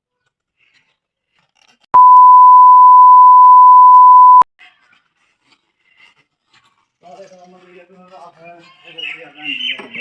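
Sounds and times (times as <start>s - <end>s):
electronic beep tone: 2.0s - 4.4s.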